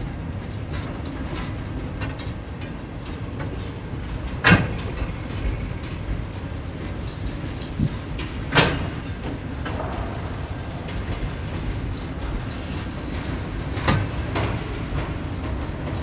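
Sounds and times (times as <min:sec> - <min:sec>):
train wheels rumbling on rails: 0:00.0 - 0:16.0
loud metal clanks: 0:07.9 - 0:15.2.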